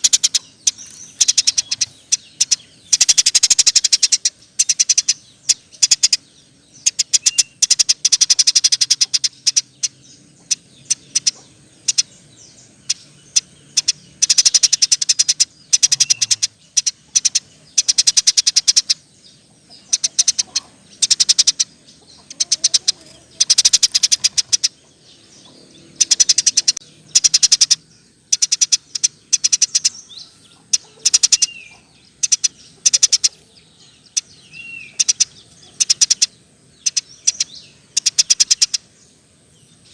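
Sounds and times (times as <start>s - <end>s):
sparrow chattering: 0.0s - 39.9s.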